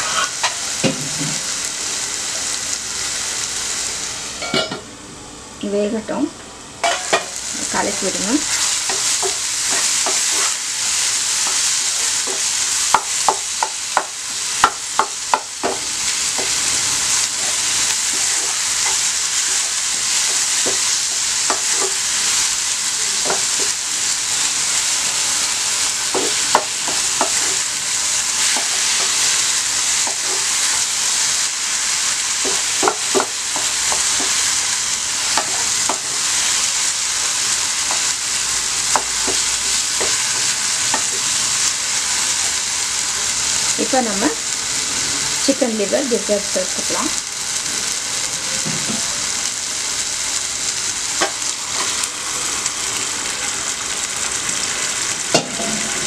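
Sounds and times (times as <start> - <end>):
food sizzling in frying pan: 0.0 - 56.0
spatula knocking and scraping pan: 8.5 - 10.6, 12.2 - 16.6, 23.2 - 23.8, 26.0 - 27.6, 32.4 - 34.4, 35.3 - 36.2, 38.9 - 41.2.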